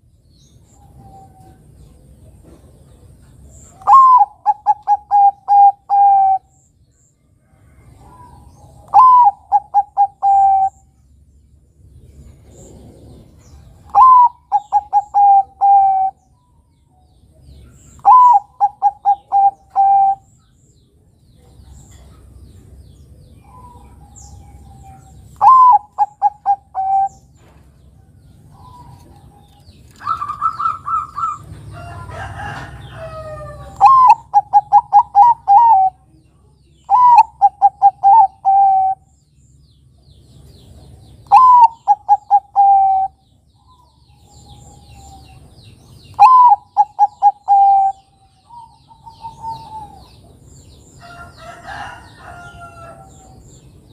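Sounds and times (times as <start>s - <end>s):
jumble of mixed bird calls: 0.0s - 53.9s
dove cooing: 3.7s - 6.6s, 8.0s - 10.9s, 12.5s - 16.2s, 17.8s - 20.3s, 23.4s - 27.3s, 28.5s - 36.1s, 36.9s - 39.1s, 41.3s - 45.4s, 46.1s - 50.4s.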